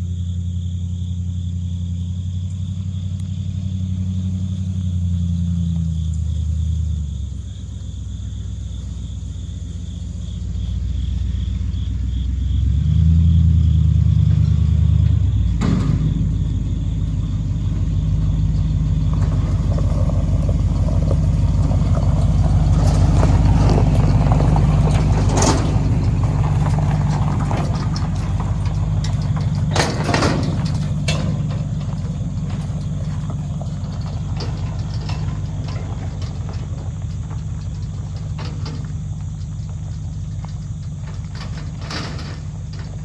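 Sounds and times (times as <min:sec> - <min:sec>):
vehicle engine idling: 0:00.0 - 0:43.0
short clunks: 0:13.3 - 0:43.0.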